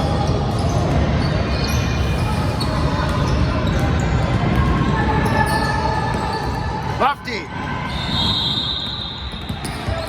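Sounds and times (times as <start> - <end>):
crowd din: 1.9 - 8.2
sneakers squeaking on court: 8.8 - 10.0.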